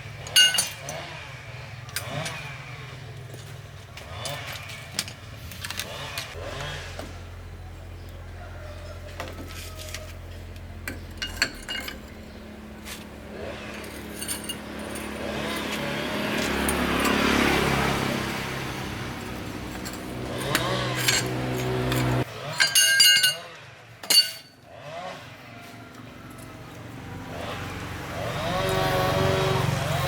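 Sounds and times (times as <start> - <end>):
road noise: 0.0 - 30.0
vehicle engine humming: 0.0 - 30.0
light metallic clinks: 0.3 - 1.0, 19.6 - 23.4, 24.0 - 24.6.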